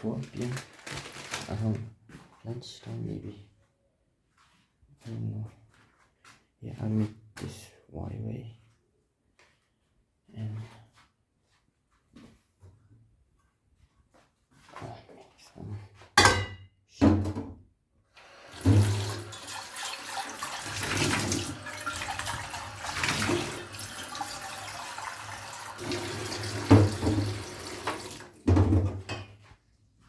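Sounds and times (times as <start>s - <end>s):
kitchen tap running into sink: 18.2s - 29.1s.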